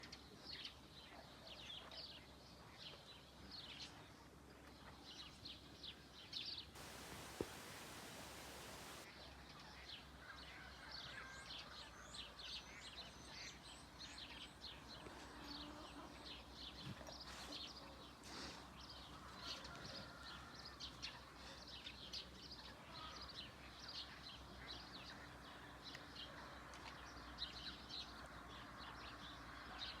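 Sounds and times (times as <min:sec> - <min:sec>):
brief hiss: 0:06.8 - 0:09.0
small birds chirping: 0:06.8 - 0:09.1.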